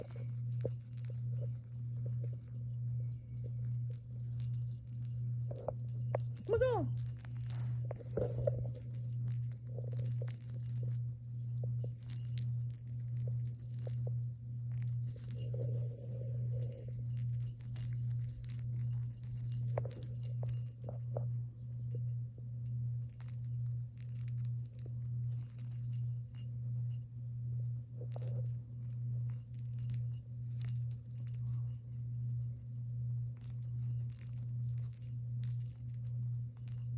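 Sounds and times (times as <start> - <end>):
small bell jingling in toy ball: 0.0 - 36.9.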